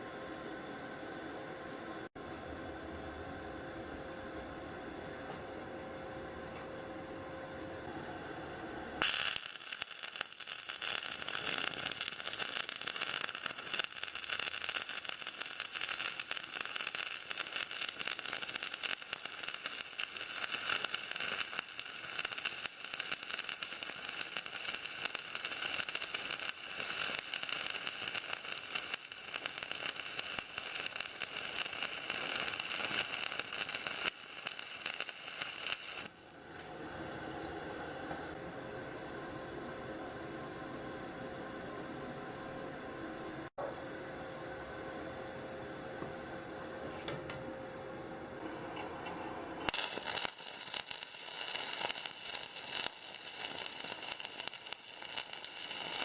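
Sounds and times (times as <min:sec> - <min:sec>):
welding arc crackling and hissing: 0:07.8 - 0:39.5, 0:48.4 - 0:56.0.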